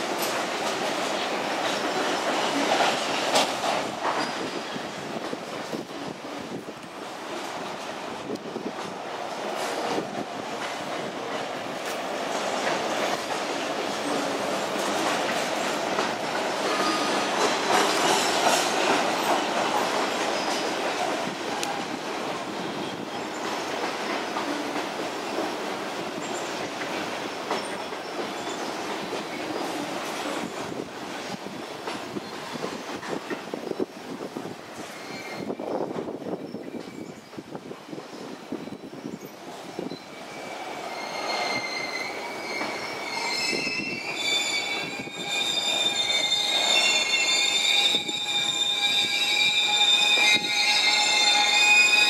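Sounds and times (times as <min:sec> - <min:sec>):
train wheel squeals: 0:01.7 - 0:05.2, 0:14.0 - 0:22.0, 0:26.1 - 0:30.8, 0:34.7 - 0:52.0.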